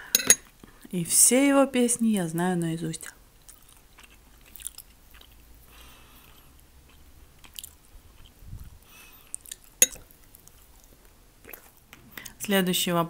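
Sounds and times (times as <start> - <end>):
person chewing soft food: 3.1 - 12.4.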